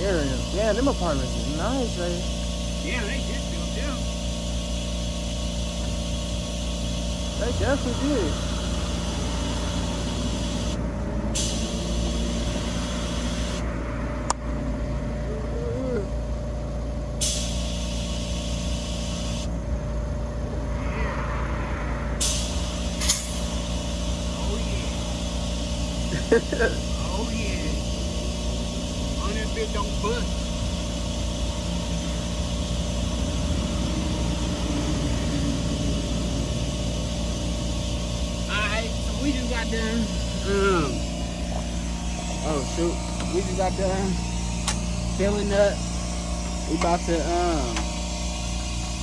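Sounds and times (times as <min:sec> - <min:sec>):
air compressor humming: 0:00.0 - 0:49.0
air hissing into tyre: 0:04.1 - 0:13.6, 0:17.2 - 0:19.5, 0:20.9 - 0:29.5
sharp click: 0:44.6 - 0:44.9.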